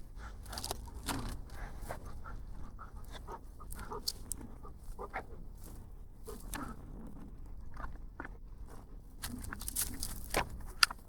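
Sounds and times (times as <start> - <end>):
dog panting: 1.4 - 6.8.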